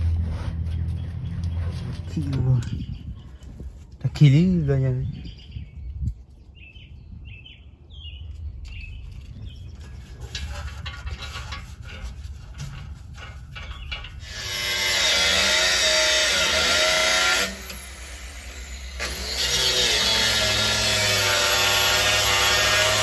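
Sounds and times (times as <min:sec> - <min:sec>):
bird chirps: 0:05.0 - 0:09.9
tools scraping and knocking: 0:08.7 - 0:15.8
motor whining: 0:14.2 - 0:23.0.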